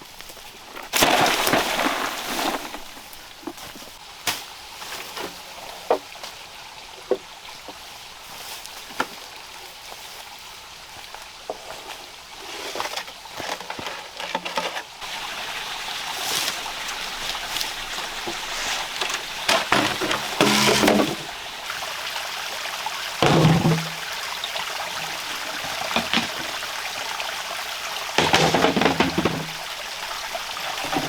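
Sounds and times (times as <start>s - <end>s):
rain falling: 12.4s - 31.0s.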